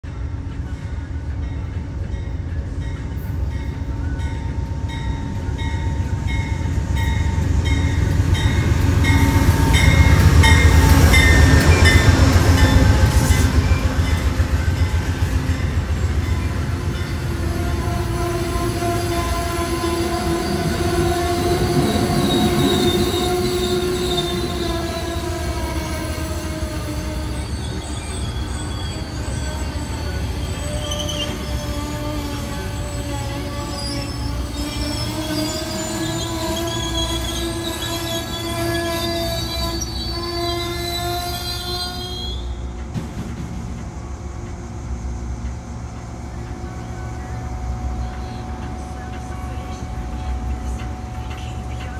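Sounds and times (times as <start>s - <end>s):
train engine and wheels rumbling: 0.0s - 51.9s
locomotive bell ringing: 0.8s - 25.3s
high squealing tones: 16.0s - 42.6s.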